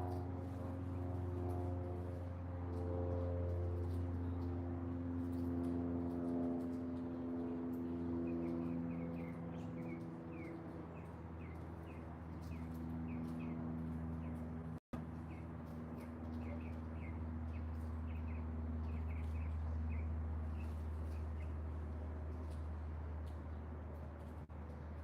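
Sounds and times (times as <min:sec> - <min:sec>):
small bird chirping: 0:15.2 - 0:21.6.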